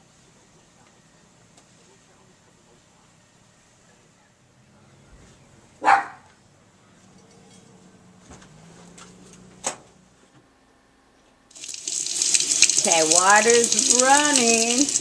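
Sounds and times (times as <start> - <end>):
dog barking: 5.8 - 6.4.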